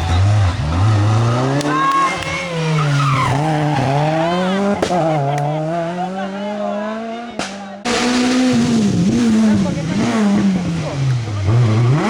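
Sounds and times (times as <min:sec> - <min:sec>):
tyre squeals: 0:00.0 - 0:05.2
rally car engine revving: 0:00.0 - 0:12.0.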